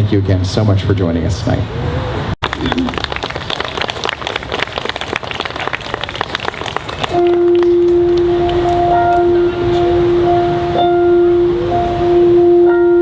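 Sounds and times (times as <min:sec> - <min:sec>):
audience clapping: 0:02.4 - 0:09.2
held musical note: 0:07.1 - 0:13.0.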